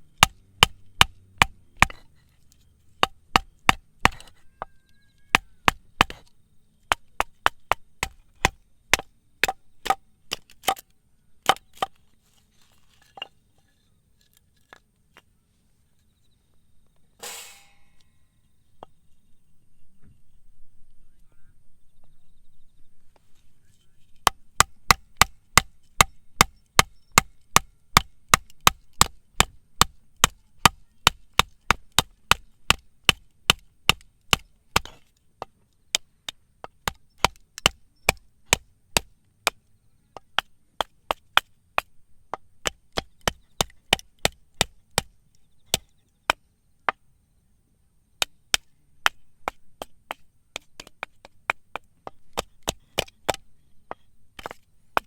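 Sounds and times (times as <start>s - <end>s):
blade chopping on wood: 0.1s - 2.1s, 3.0s - 4.4s, 5.3s - 6.3s, 6.9s - 10.8s, 11.4s - 12.0s, 24.2s - 35.1s, 36.6s - 39.6s, 40.2s - 45.9s, 48.2s - 55.0s.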